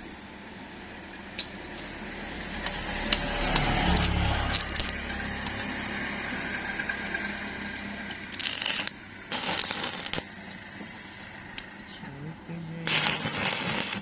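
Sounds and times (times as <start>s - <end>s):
steady hum: 0.0s - 14.0s
arc welding crackle: 2.6s - 5.6s, 8.1s - 10.8s, 12.8s - 14.0s.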